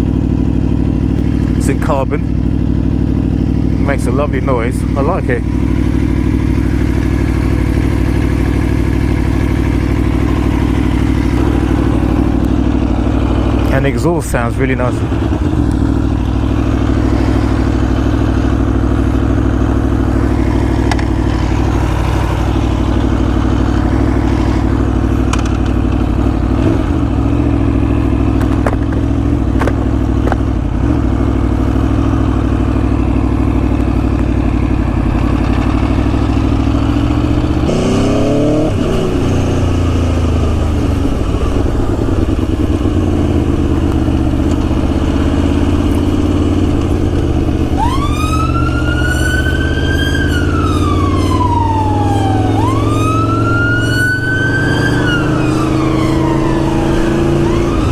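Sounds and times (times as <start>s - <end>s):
motorcycle engine idling: 0.0s - 48.8s.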